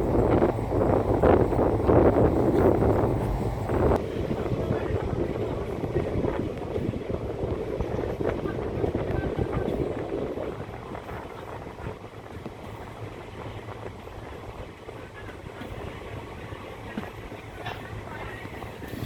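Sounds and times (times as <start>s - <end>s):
vehicle rumbling: 0.0s - 7.8s
wind on microphone: 0.0s - 17.2s.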